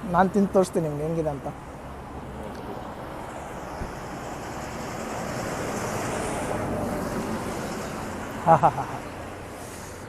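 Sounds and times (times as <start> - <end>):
road traffic rushing: 0.0 - 10.0.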